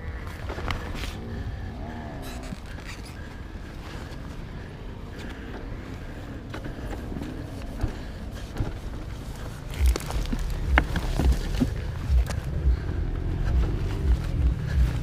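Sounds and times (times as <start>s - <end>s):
motorcycle engine rumbling: 0.0s - 15.0s
heavy low thumps: 9.6s - 15.0s.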